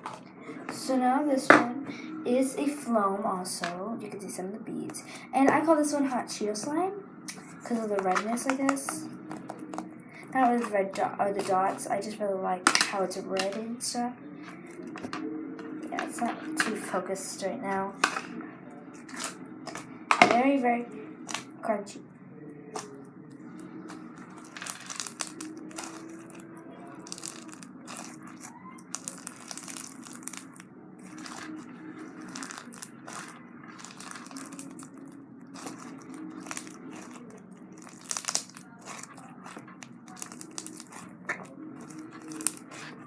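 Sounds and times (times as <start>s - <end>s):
slime crunching and popping: 19.0s - 19.9s, 21.2s - 21.5s, 23.8s - 43.0s.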